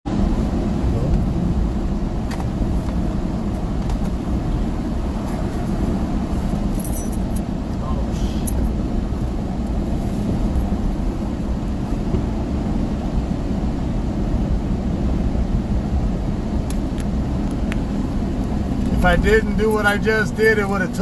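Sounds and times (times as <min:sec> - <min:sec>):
vehicle road and engine rumble: 0:00.0 - 0:21.0.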